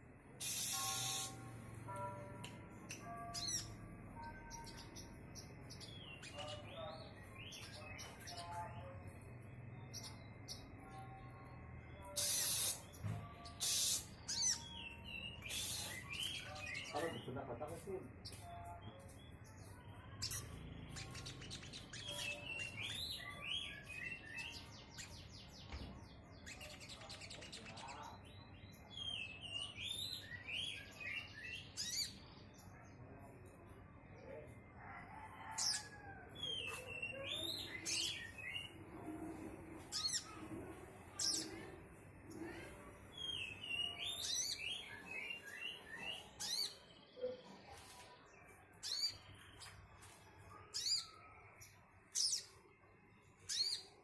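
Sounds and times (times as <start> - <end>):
bird fast trill: 0.4 - 1.5, 12.0 - 16.9.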